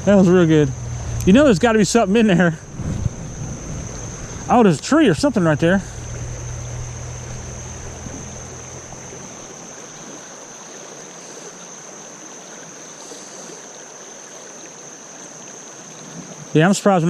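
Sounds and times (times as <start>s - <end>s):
high thin whine: 0.0s - 9.7s
creek water running over rocks: 0.0s - 17.0s.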